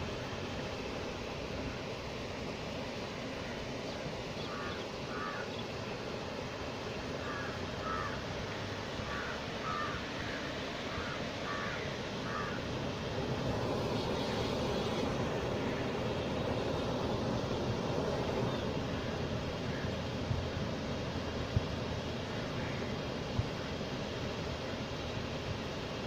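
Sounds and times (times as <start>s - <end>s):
steady rushing noise: 0.0s - 26.0s
crow cawing: 4.5s - 5.5s, 7.2s - 12.7s.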